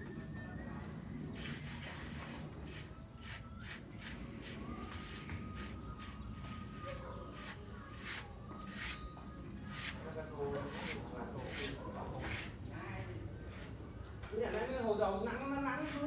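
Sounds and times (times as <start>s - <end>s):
hand tool scraping hard surface: 1.4s - 9.0s, 9.7s - 10.0s, 10.6s - 12.6s.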